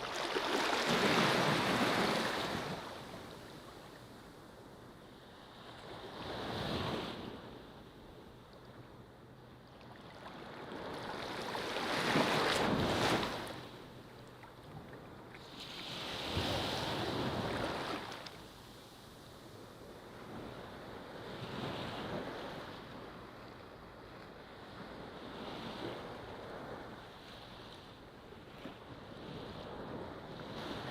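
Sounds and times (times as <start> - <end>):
ocean waves breaking: 0.0 - 3.3.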